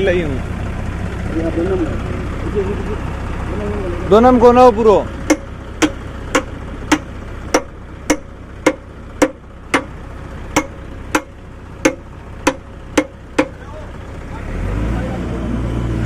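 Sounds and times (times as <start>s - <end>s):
hammer blows: 5.3s - 10.0s, 10.6s - 13.6s.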